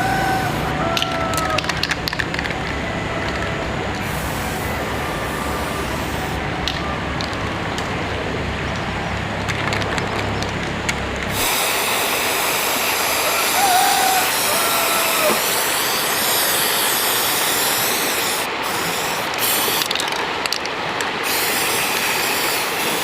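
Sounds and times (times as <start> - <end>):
steady hiss with high whine: 1.9 - 9.4, 10.7 - 23.0
arc welding crackling hiss: 11.3 - 20.0, 21.2 - 23.0.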